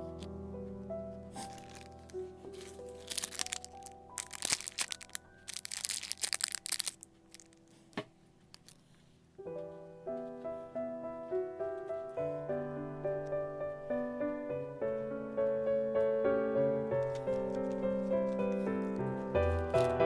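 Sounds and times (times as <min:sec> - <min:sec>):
background music: 0:00.0 - 0:07.6
crinkling crackling noises: 0:00.0 - 0:10.4, 0:17.0 - 0:20.0.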